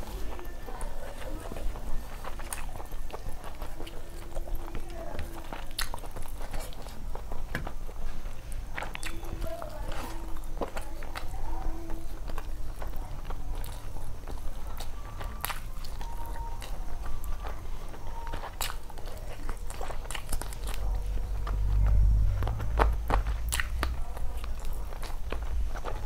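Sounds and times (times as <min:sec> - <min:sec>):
person chewing wetly: 0:00.0 - 0:26.0
low rumble: 0:20.6 - 0:25.0.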